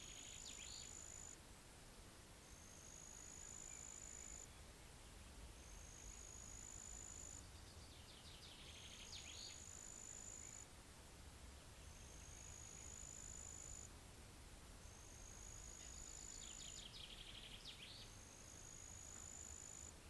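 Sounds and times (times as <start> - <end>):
bird chirping: 0.0 - 1.3, 7.2 - 10.6, 15.7 - 18.3
low rumble of wind: 10.6 - 13.0, 13.8 - 19.2.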